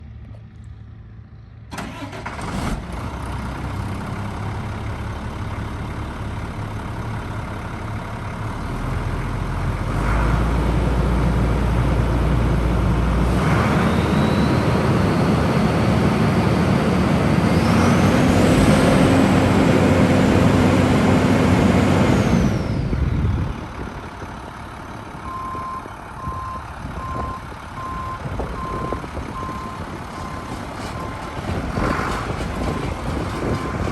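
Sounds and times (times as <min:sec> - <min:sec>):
diesel truck engine idling: 0:02.9 - 0:09.9, 0:19.9 - 0:33.9
engine revving with whine: 0:13.2 - 0:23.0.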